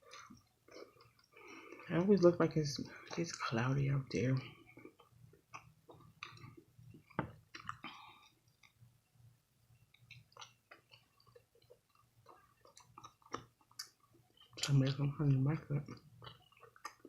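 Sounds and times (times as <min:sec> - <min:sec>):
person chewing food: 0:00.0 - 0:01.9, 0:04.4 - 0:09.0, 0:09.8 - 0:14.7, 0:15.8 - 0:17.0.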